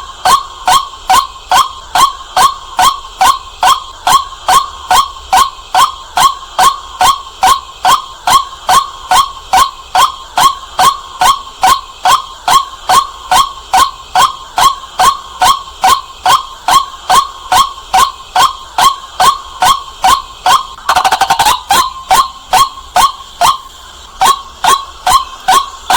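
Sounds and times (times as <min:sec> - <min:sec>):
waterhen calling: 0:07.8 - 0:25.9.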